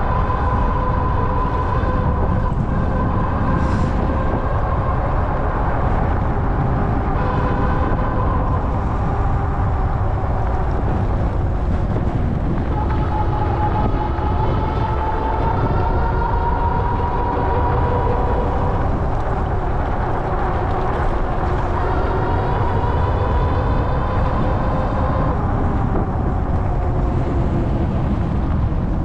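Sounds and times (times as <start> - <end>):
wind and road noise: 0.0 - 29.0.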